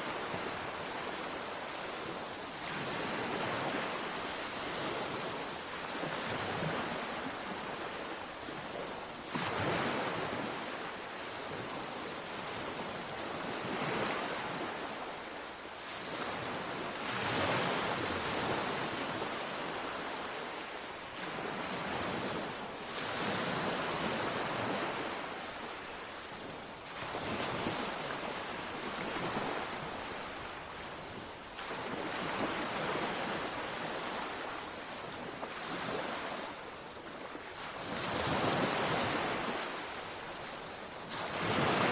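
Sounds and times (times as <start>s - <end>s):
sea waves breaking: 0.0s - 41.9s.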